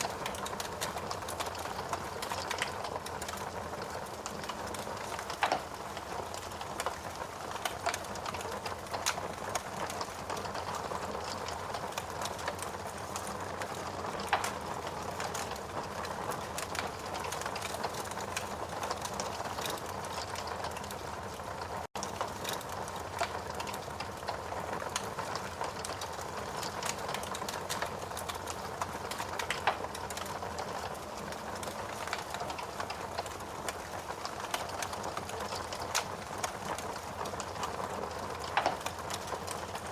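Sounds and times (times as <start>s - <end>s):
steady rain: 0.0s - 39.9s
wood fire crackling: 0.0s - 39.9s.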